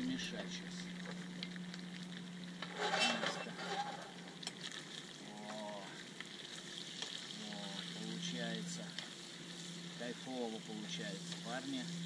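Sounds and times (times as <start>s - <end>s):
meat and vegetables sizzling: 0.0s - 12.0s
stirring in a pan: 2.6s - 5.1s.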